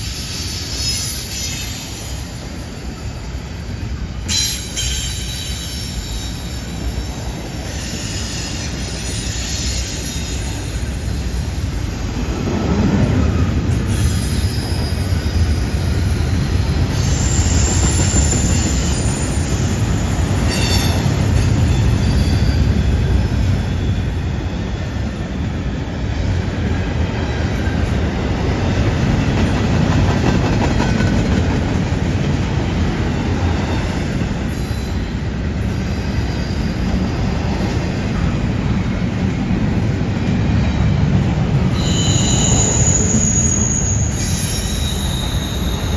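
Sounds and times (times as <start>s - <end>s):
rumble of train wheels on rail: 0.0s - 45.9s
high-pitched wheel squeal: 16.8s - 22.9s, 41.7s - 45.9s.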